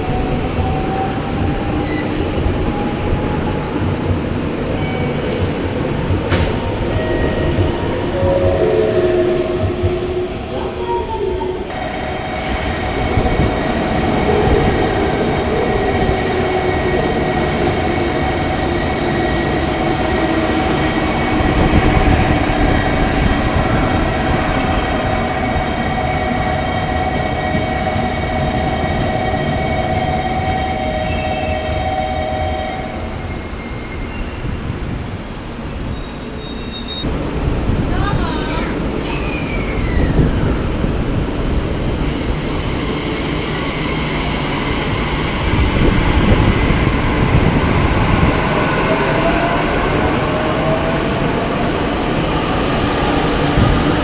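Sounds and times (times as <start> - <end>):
train rumbling: 0.0 - 54.0
whining tones: 6.4 - 37.0.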